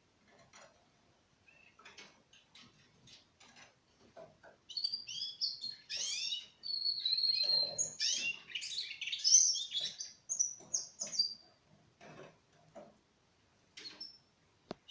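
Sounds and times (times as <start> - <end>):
canary singing trills: 1.4 - 2.0, 4.4 - 11.6.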